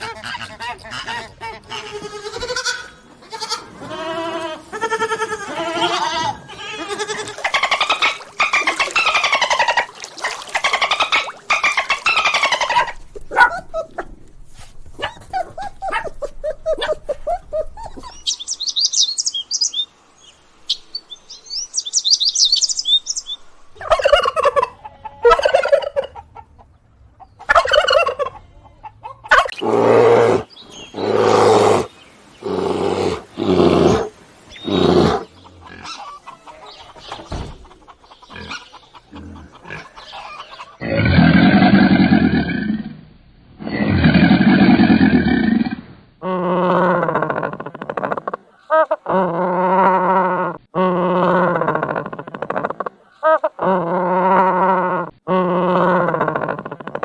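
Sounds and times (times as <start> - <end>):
high bird chirping: 17.7 - 19.9, 20.7 - 23.5
long low animal calls: 29.4 - 36.7, 43.6 - 57.0.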